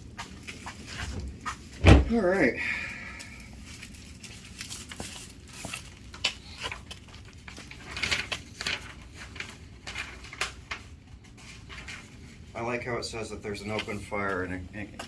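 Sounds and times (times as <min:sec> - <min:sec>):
packaging rustling: 0:00.2 - 0:12.4.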